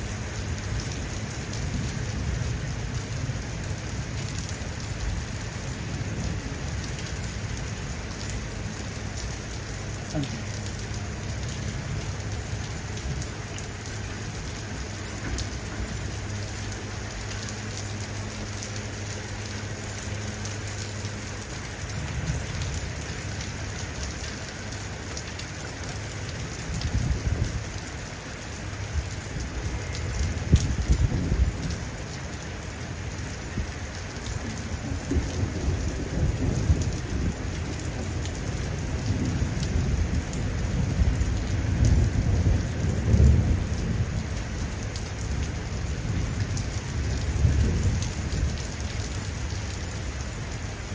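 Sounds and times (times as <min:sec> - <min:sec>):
heavy rain falling: 0:00.0 - 0:50.9
thunder rumbling: 0:28.9 - 0:50.5.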